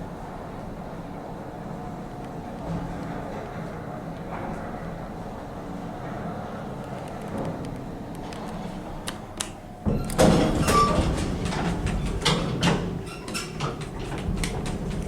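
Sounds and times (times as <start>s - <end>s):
lift machinery hum: 0.0s - 15.0s
lift doors sliding: 0.4s - 15.0s
clicking and clattering: 10.1s - 15.0s.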